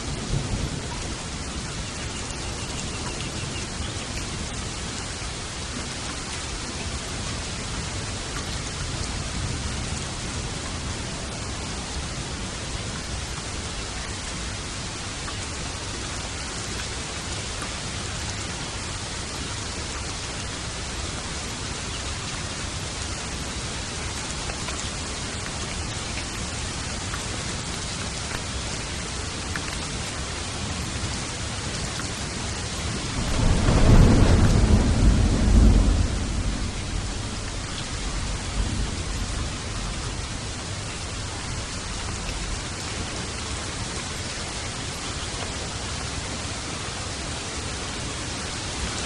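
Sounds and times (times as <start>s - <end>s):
heavy rainfall: 0.0s - 49.0s
faint low rumble: 32.9s - 41.4s.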